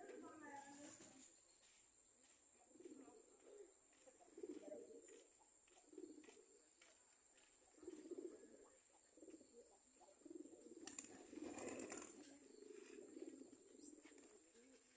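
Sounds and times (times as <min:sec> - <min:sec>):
pigeons cooing: 0:04.3 - 0:05.2, 0:05.8 - 0:06.5, 0:07.7 - 0:14.9.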